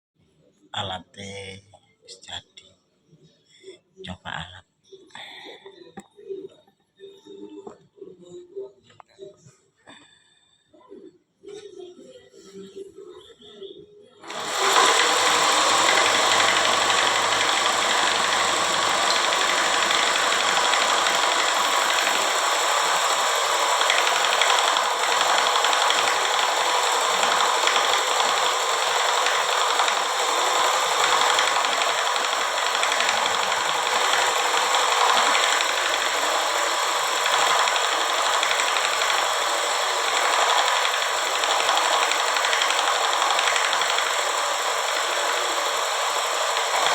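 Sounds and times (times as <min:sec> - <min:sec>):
scroll saw rattling: 0:14.2 - 0:46.9.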